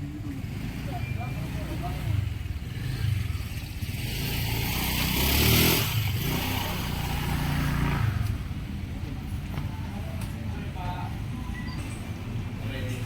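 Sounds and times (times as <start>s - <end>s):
vehicle passing close by: 0.4s - 8.7s.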